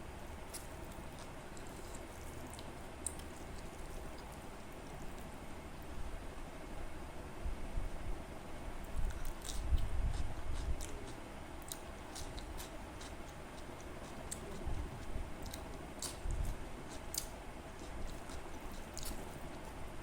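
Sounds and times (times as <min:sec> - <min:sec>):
person chewing food: 0:00.4 - 0:05.4, 0:09.0 - 0:19.8.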